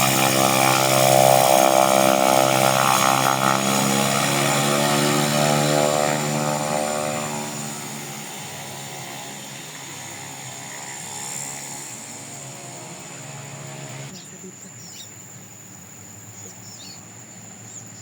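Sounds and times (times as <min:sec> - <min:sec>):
propeller plane engine drone: 0:00.0 - 0:14.2.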